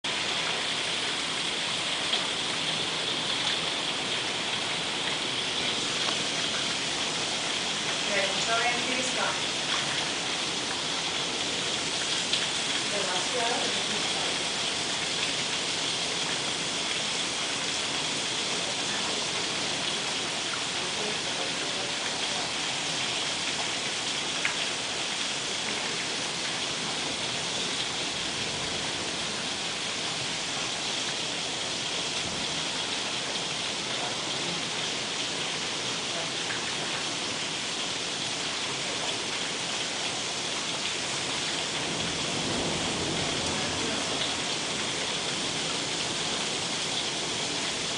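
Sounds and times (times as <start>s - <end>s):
rain falling steadily: 0.0s - 47.9s.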